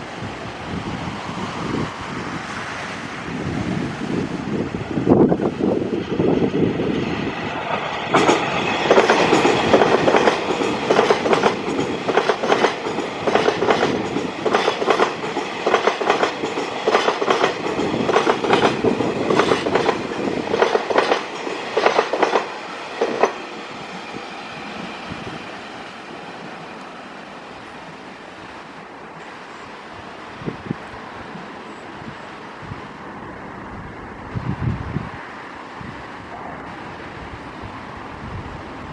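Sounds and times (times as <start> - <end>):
train rumble: 0.0 - 38.9
train wheels clicking over rails: 5.3 - 27.0.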